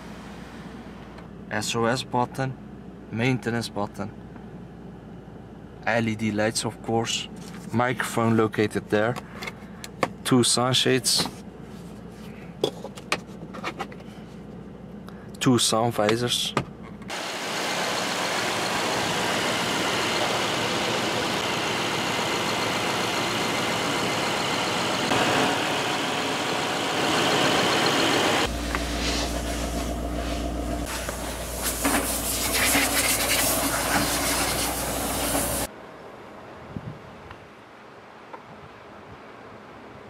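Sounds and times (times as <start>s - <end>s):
car engine running: 16.7s - 35.7s
deep uneven exhaust rumble: 16.7s - 35.7s.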